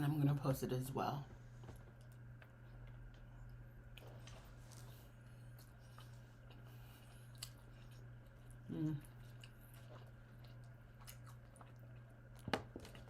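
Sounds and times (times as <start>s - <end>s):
low steady hum: 0.0s - 13.0s
chewing food: 1.6s - 13.0s
person humming: 8.7s - 9.2s.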